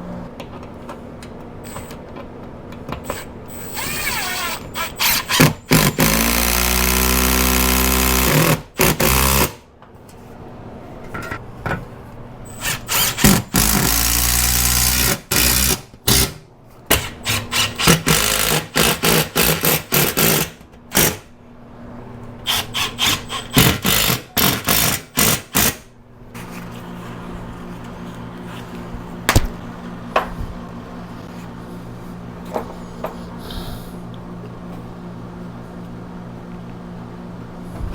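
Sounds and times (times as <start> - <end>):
cordless power drill running: 3.6 - 9.6, 12.6 - 15.8, 22.5 - 25.7.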